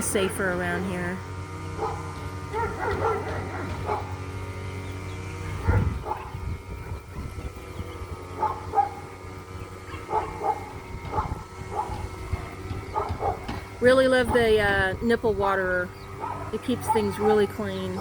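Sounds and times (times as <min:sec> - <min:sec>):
dogs barking: 0:01.7 - 0:04.3, 0:05.3 - 0:07.2, 0:07.9 - 0:13.7, 0:16.1 - 0:18.0.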